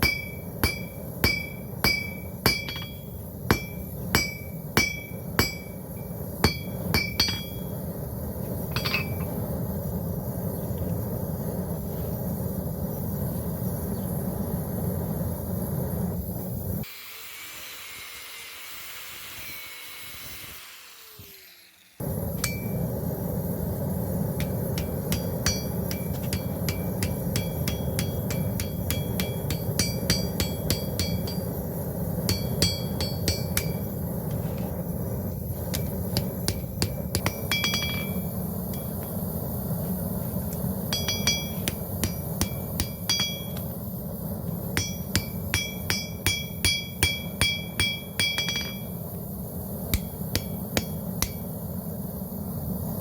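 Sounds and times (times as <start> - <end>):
hammer striking steel on anvil: 0.0 - 7.7, 8.7 - 9.4, 22.4 - 22.8, 24.4 - 33.9, 35.7 - 39.0, 40.9 - 43.7, 44.8 - 49.0, 49.9 - 51.5
steady low rumble: 0.0 - 16.8, 22.0 - 53.0.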